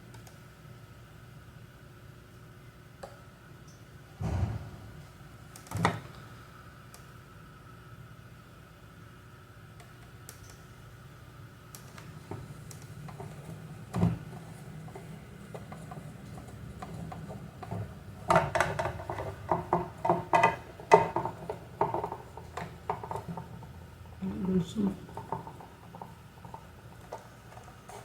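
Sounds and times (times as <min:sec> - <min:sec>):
faint steady hum: 0:00.0 - 0:28.0
knock: 0:04.2 - 0:05.0.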